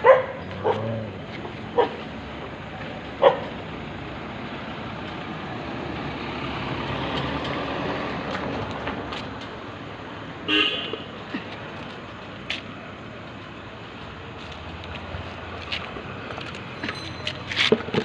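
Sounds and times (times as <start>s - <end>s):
dog bark: 0.0s - 0.9s, 1.7s - 2.0s, 3.2s - 3.5s
road traffic passing: 0.0s - 18.0s
vehicle horn toot: 10.5s - 11.1s.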